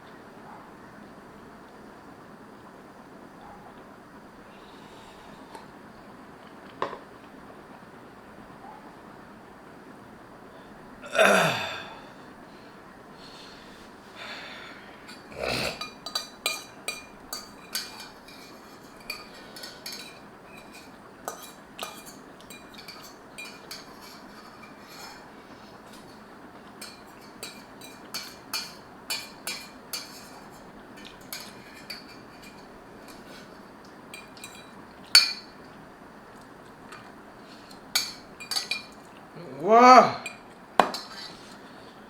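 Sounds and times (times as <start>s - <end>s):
utensils clinking against bowl: 15.0s - 35.8s, 36.9s - 39.2s, 40.2s - 41.6s.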